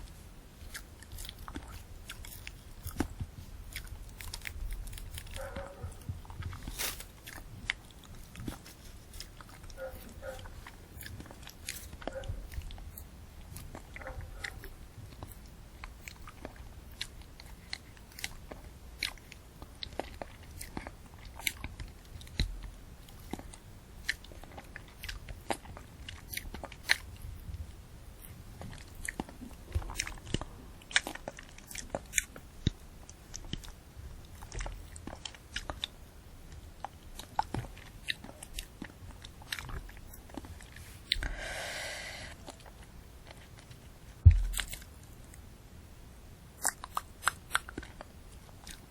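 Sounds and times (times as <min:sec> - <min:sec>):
crunchy chewing and biting: 0:00.0 - 0:45.4, 0:46.6 - 0:48.9
breathy sound: 0:41.1 - 0:42.6.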